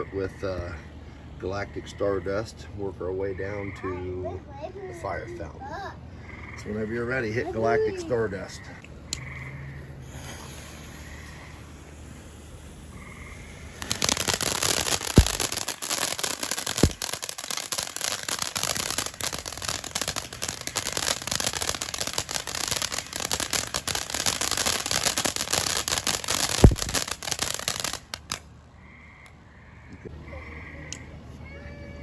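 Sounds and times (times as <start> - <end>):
fountain firework crackling hiss: 6.7 - 28.6
low thumps: 15.1 - 15.6, 26.6 - 27.1.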